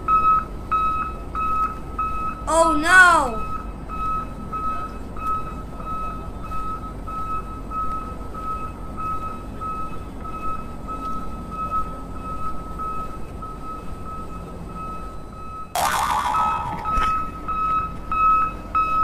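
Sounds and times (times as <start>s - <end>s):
reversing alarm beeping: 0.0s - 2.5s, 3.3s - 19.0s.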